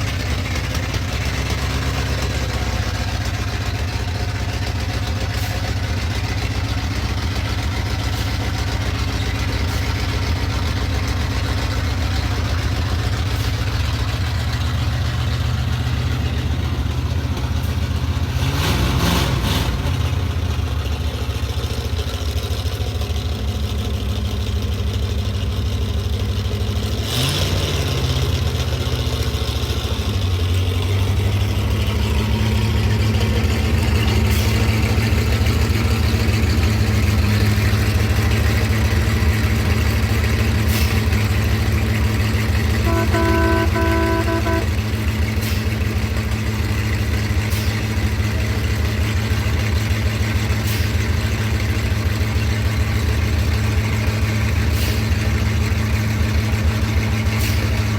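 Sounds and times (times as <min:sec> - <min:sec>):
truck engine running: 0:00.0 - 0:57.9
horn honking: 0:42.7 - 0:45.1.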